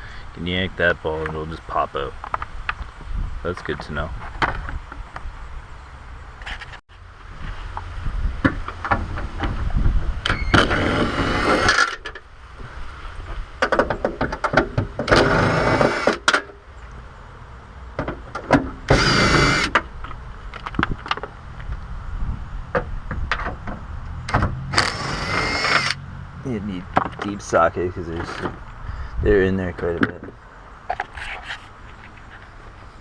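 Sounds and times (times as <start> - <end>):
handling clicks and knocks: 26.8 - 27.4.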